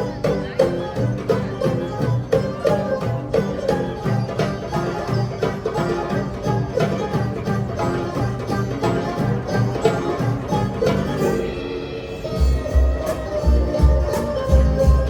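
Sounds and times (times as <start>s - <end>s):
hand drum beat: 0.0s - 11.5s, 12.3s - 15.0s
plucked string notes: 0.0s - 15.0s.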